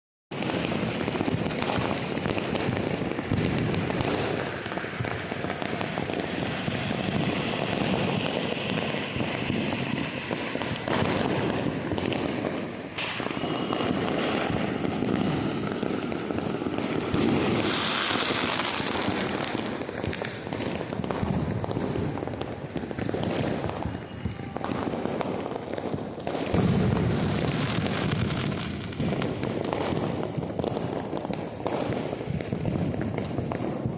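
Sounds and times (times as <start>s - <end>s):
firecrackers popping and banging: 0.3s - 33.9s
loud hiss: 17.6s - 18.8s.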